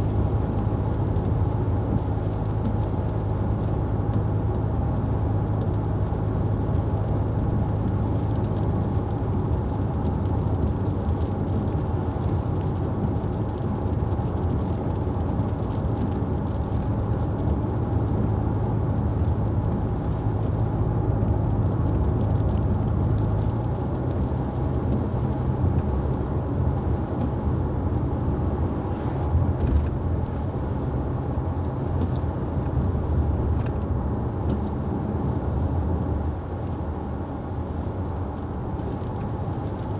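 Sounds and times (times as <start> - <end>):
road rumble: 0.0 - 39.9
car engine: 10.7 - 39.9.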